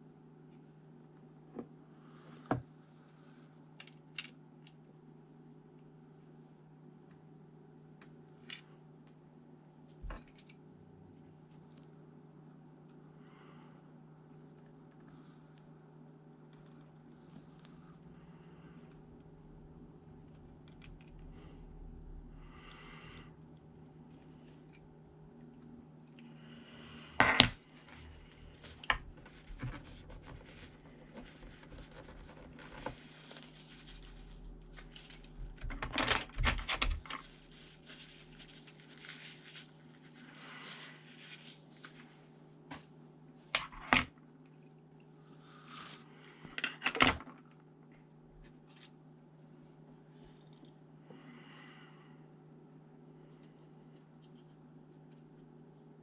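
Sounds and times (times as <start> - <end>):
steady low hum: 0.0 - 56.0
handling noises: 27.2 - 42.9.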